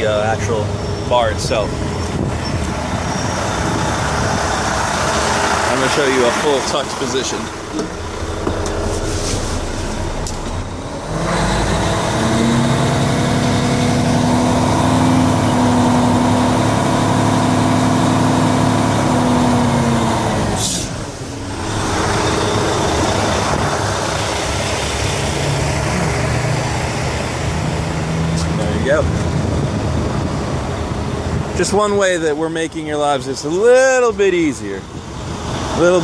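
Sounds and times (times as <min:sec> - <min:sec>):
diesel engine running at raised revs: 0:00.0 - 0:36.0.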